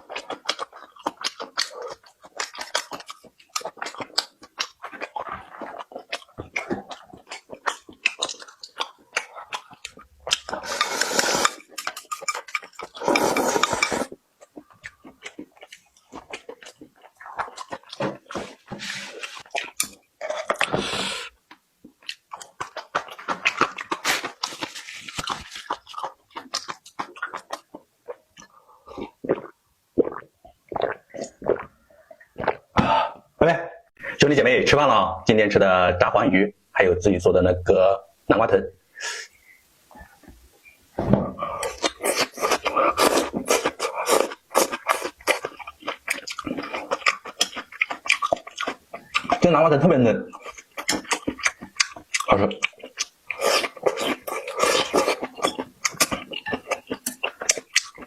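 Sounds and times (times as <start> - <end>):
crunching food: 0.0 - 20.9, 21.5 - 30.2, 41.5 - 49.6, 50.2 - 58.0.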